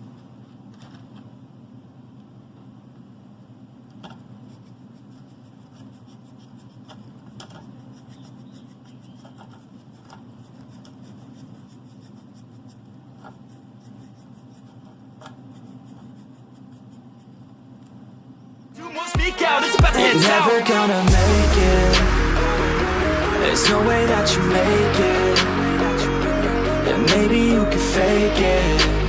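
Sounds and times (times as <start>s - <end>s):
paintbrush scratchy brushing: 4.4s - 17.6s
steady low hum: 21.1s - 29.0s.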